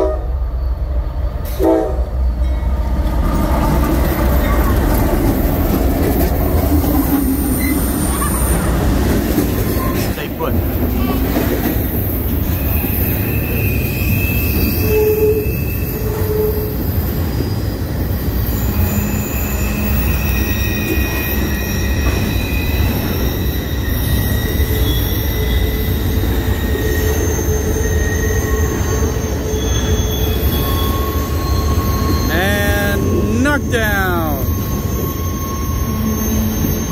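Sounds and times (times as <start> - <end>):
freight train wheels rumbling: 0.0 - 36.9
high-pitched wheel squeals: 12.4 - 33.3, 34.4 - 36.9.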